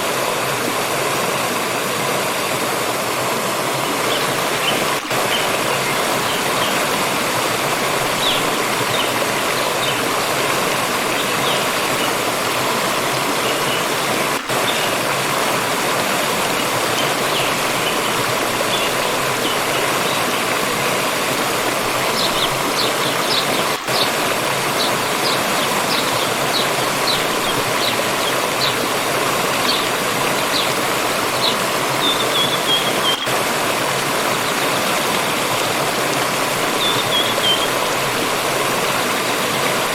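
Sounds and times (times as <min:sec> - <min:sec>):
stream water flowing: 0:00.0 - 0:39.9
small birds chirping: 0:21.9 - 0:33.4, 0:36.7 - 0:38.0.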